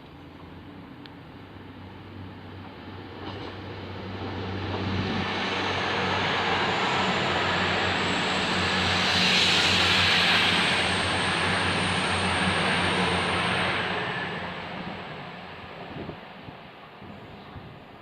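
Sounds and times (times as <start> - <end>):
high train whine: 0.0 - 18.0
train passing: 0.2 - 18.0.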